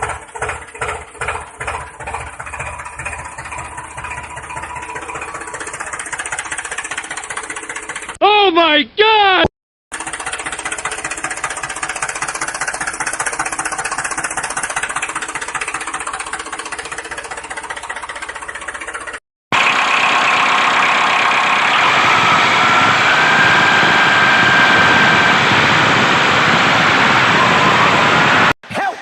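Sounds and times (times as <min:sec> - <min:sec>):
small motor chugging: 0:00.0 - 0:08.2, 0:09.9 - 0:19.2.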